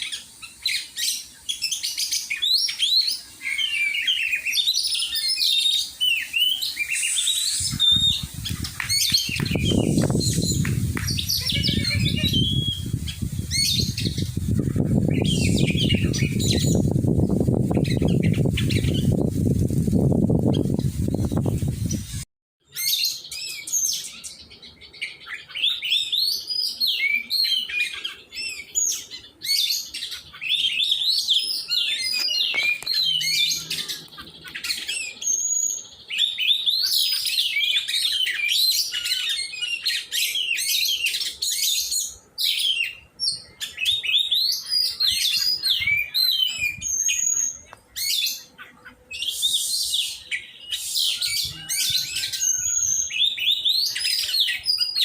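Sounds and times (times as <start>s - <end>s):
bird singing chirps and whistles: 0.0s - 19.2s, 22.7s - 48.5s, 49.1s - 55.0s.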